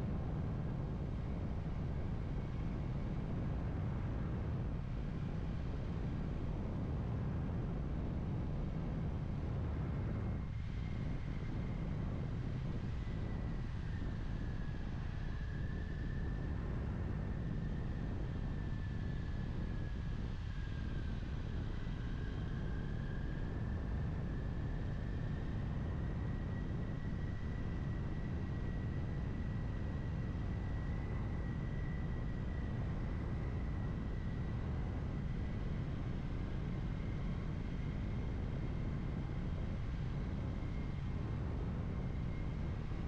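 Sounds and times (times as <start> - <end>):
faint high whine: 0.0 - 43.0
wind noise on microphone: 0.0 - 43.0.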